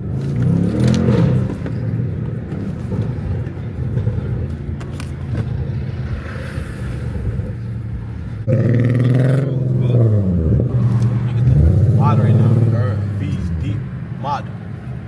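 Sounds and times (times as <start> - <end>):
car engine running: 7.5 - 15.0.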